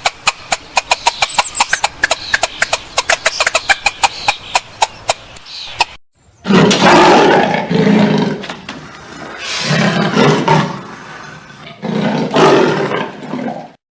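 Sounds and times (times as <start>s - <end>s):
large animal rough calls: 6.5s - 13.8s.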